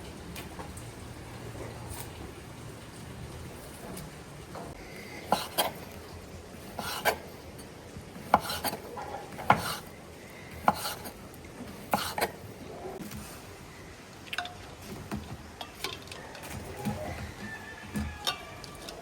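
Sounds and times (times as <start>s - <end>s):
dishes and utensils clinking: 14.3s - 19.0s.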